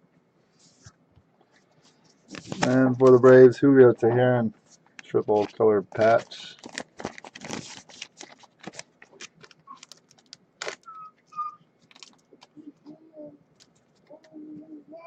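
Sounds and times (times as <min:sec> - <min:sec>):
trading cards clicking and rustling: 0:04.8 - 0:11.0, 0:11.8 - 0:12.6
bird whistled chirps: 0:10.8 - 0:11.7
bird cooing: 0:10.9 - 0:11.6, 0:12.6 - 0:13.4, 0:14.1 - 0:15.0.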